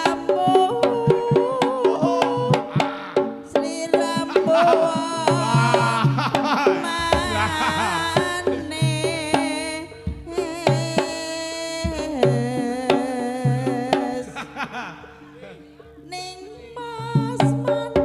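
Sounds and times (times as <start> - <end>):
sharp hand drum strokes: 0.0 - 14.3
person singing: 0.0 - 18.0.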